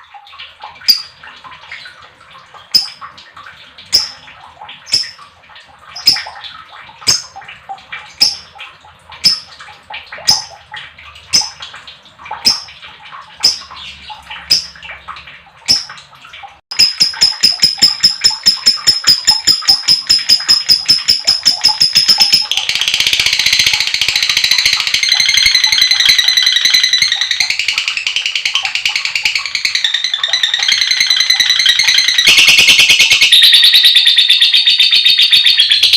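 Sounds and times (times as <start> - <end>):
lovebird chirping and trilling: 0.8 - 1.2, 2.8 - 3.0, 3.9 - 4.2, 4.9 - 5.2, 6.0 - 6.4, 8.2 - 8.5, 10.3 - 10.6, 11.3 - 11.6, 12.4 - 12.7, 13.4 - 14.8, 16.7 - 35.9.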